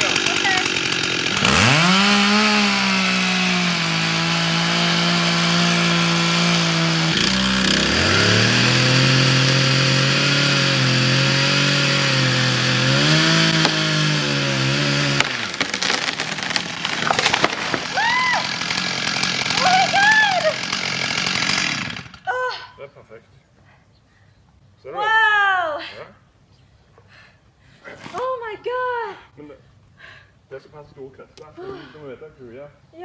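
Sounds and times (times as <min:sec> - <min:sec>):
wood cracking: 0:00.0 - 0:09.2, 0:10.2 - 0:22.2
chainsaw running at high revs: 0:00.0 - 0:22.2.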